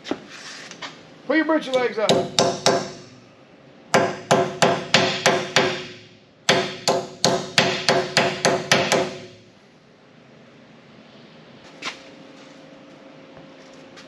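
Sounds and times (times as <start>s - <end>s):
hammer striking sheet steel: 2.1s - 3.2s, 3.9s - 9.4s.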